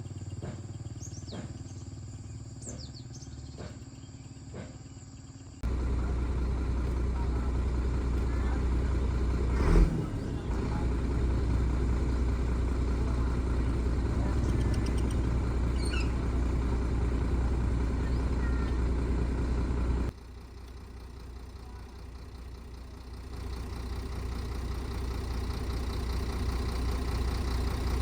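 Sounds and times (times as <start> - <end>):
bird chirps: 0.0 - 5.6, 13.6 - 16.6
large vehicle engine rumbling: 0.0 - 28.0
low engine hum: 0.0 - 28.0.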